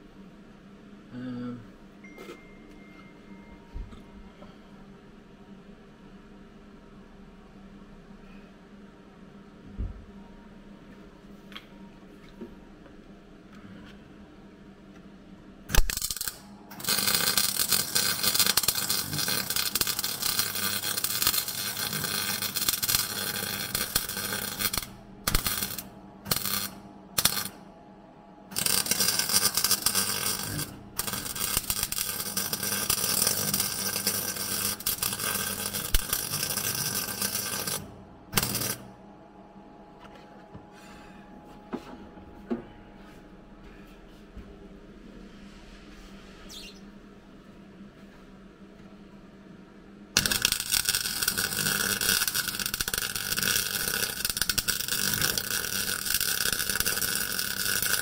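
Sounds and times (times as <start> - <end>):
welding crackle: 15.7 - 27.6, 28.5 - 38.8, 50.2 - 58.0.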